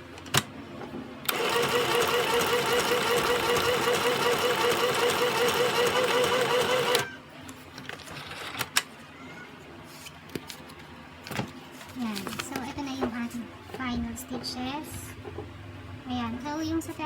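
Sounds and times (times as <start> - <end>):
sewing machine stitching: 1.3 - 7.1.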